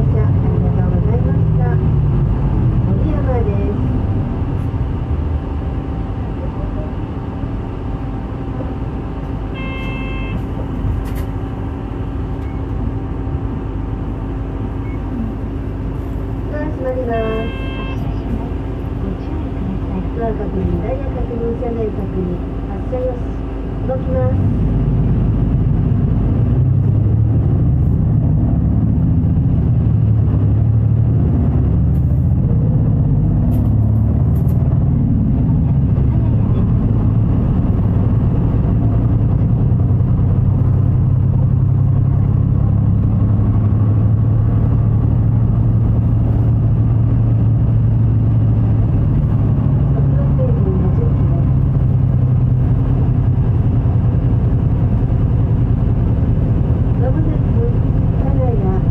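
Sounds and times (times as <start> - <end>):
bus engine running: 0.0 - 58.9
short electronic beep: 9.6 - 10.4.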